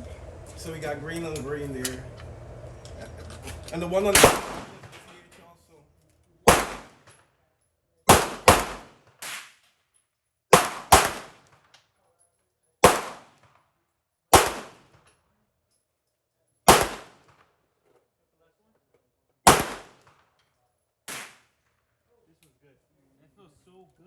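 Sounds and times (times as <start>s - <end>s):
pistol shots echoing: 4.1s - 5.0s, 6.5s - 7.1s, 8.1s - 9.5s, 10.5s - 11.5s, 12.8s - 13.4s, 14.3s - 14.9s, 16.7s - 17.3s, 19.5s - 20.1s.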